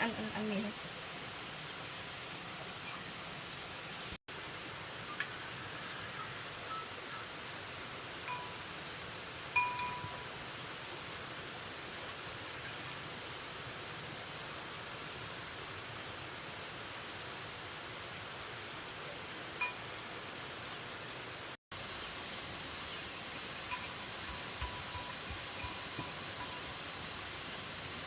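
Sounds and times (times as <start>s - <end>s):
steady hiss: 0.0s - 28.0s
utensils clinking against bowl: 9.6s - 10.3s.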